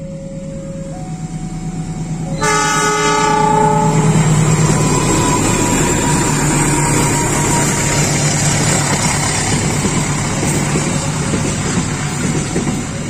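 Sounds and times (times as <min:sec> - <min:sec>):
passing train rumble: 0:00.0 - 0:13.0
train engine hum: 0:00.0 - 0:13.0
train horn blast: 0:02.3 - 0:08.3.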